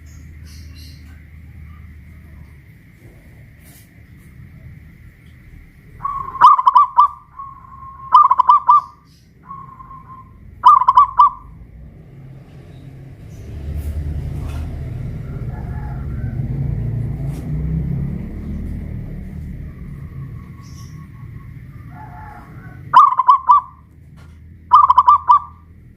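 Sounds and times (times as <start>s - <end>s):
low rumble: 0.0s - 23.0s
dove cooing: 5.6s - 23.9s, 24.7s - 25.7s.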